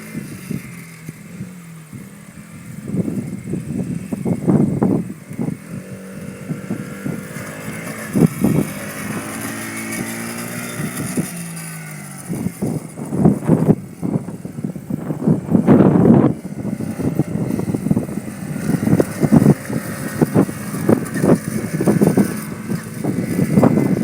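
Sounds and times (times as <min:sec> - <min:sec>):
small engine running unevenly: 0:00.0 - 0:24.0.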